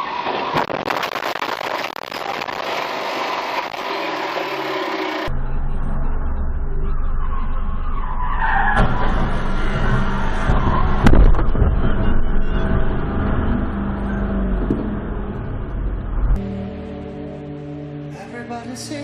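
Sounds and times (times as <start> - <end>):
tyres skidding screech: 0.0 - 5.3, 6.7 - 15.6
sharp crash: 0.1 - 5.3
vehicle engine running: 0.6 - 19.0.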